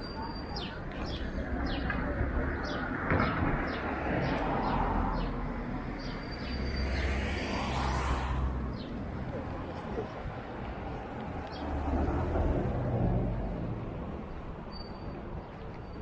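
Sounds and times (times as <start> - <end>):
small birds chirping: 0.0 - 3.0
rising swish: 6.8 - 8.8.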